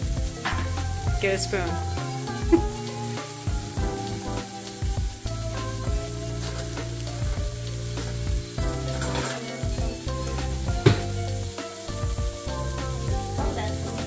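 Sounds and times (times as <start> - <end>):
vegetables sizzling in a frying pan: 0.0 - 14.0.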